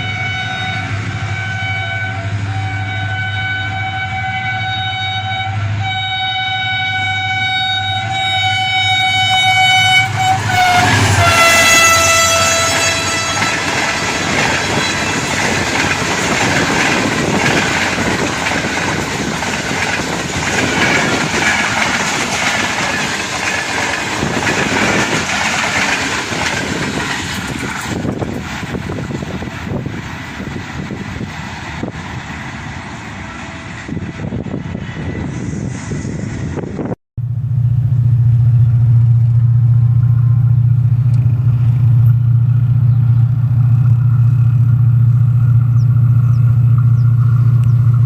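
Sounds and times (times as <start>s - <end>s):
locomotive multi-tone horn: 0.0s - 18.8s
train rumbling over rail joints: 0.0s - 48.0s.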